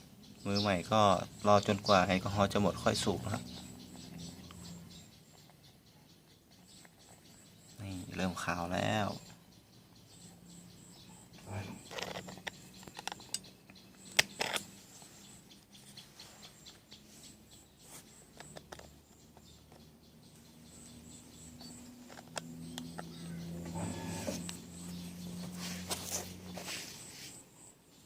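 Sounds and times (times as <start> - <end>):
crickets chirping: 0.0 - 28.0
low steady hum: 20.0 - 27.8.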